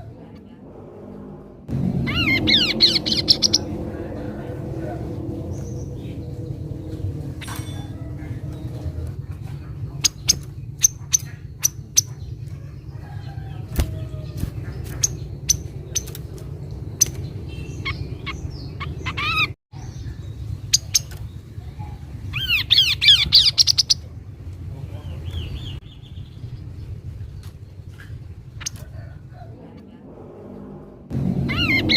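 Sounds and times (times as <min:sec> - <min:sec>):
steady low hum: 0:00.0 - 0:31.9
rapid chirping: 0:02.0 - 0:03.9
bird calls: 0:02.0 - 0:30.0, 0:31.4 - 0:31.9.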